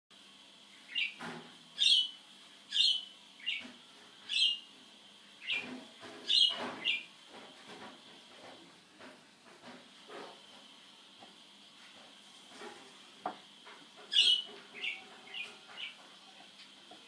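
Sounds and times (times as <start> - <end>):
bird chirping: 0.9 - 1.2, 1.8 - 3.7, 4.3 - 4.7, 5.4 - 5.7, 6.3 - 7.1, 14.1 - 16.0.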